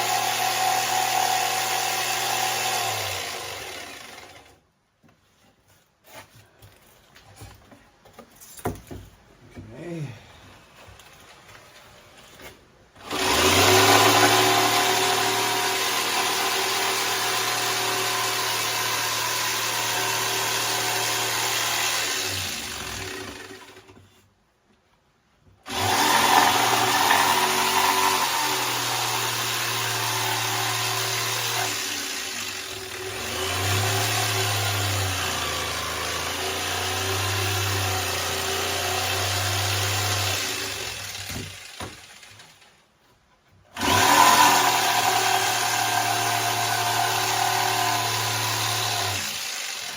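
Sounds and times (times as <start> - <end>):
power tool motor running: 0.0 - 4.5, 13.0 - 23.9, 25.7 - 42.4, 43.8 - 49.9.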